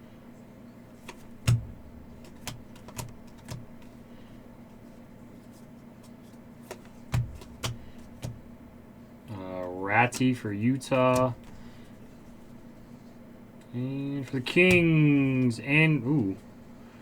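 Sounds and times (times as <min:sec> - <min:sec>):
faint steady hum: 0:00.0 - 0:17.0
cards clicking on a table: 0:01.0 - 0:04.0, 0:06.0 - 0:08.7, 0:09.3 - 0:12.9.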